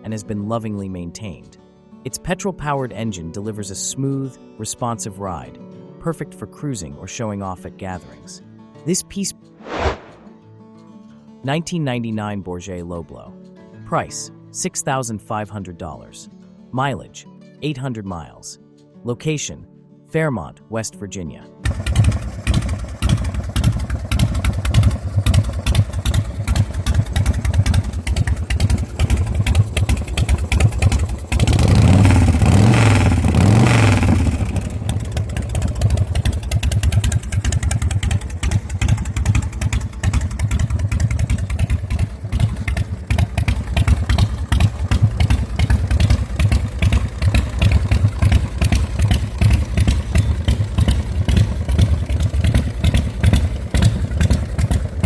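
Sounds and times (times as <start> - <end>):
motorcycle engine idling: 21.6 - 55.0.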